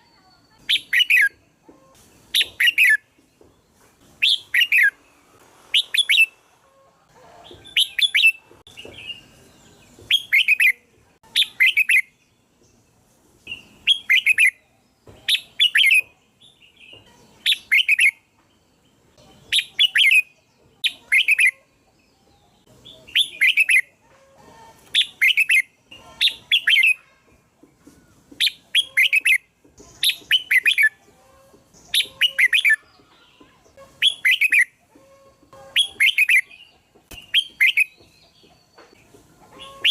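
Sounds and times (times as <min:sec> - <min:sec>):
bird singing: 0:07.6 - 0:24.0, 0:24.9 - 0:27.2, 0:28.4 - 0:39.9.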